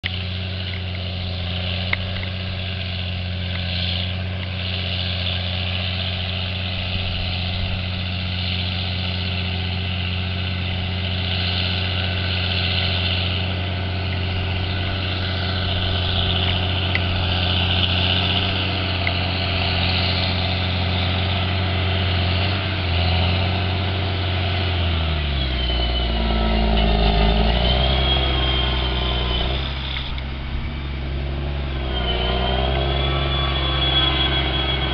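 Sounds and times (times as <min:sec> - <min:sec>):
rising whine: 0:00.0 - 0:34.9
tractor diesel engine running: 0:00.0 - 0:34.9.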